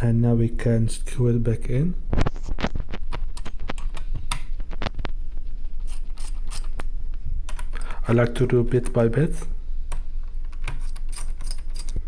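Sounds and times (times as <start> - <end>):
steady low hum: 0.0 - 12.0
screwdriver turning screws: 5.9 - 6.8, 10.6 - 12.0.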